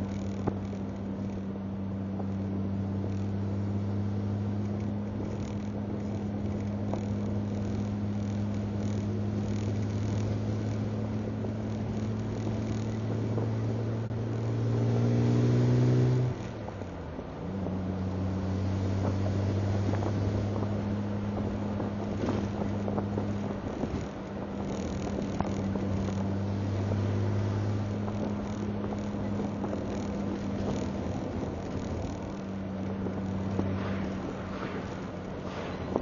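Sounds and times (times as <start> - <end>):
car engine droning: 0.0 - 36.0
road and wind noise: 0.0 - 36.0.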